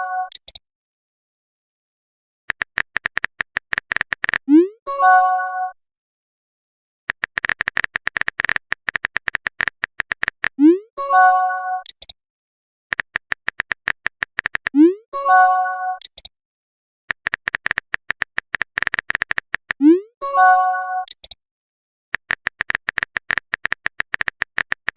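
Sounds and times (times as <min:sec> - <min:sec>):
rapid keyboard typing clicks: 0:02.5 - 0:04.5, 0:07.1 - 0:10.6, 0:12.9 - 0:14.8, 0:17.1 - 0:19.8, 0:22.2 - 0:24.9.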